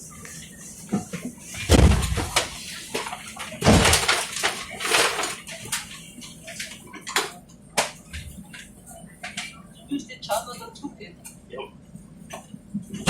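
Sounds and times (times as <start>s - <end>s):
heavy thump inside tram: 1.6s - 2.6s.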